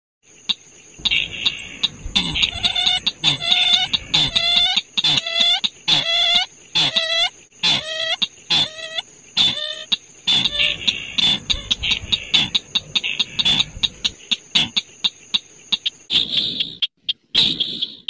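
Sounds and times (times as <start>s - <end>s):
waterhen harsh calls: 1.0s - 14.8s.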